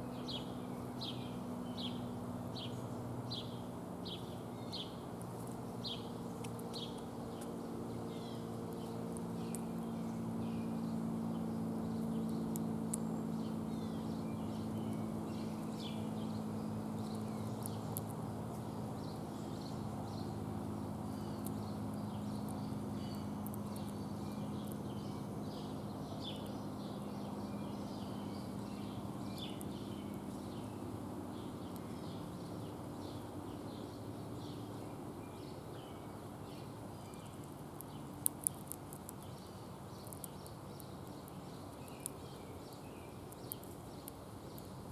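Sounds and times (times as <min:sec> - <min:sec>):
low mechanical hum: 0:00.0 - 0:44.9
small birds chirping: 0:00.0 - 0:44.9
sharp little clicks: 0:23.4 - 0:24.0, 0:37.1 - 0:39.3, 0:40.0 - 0:44.8.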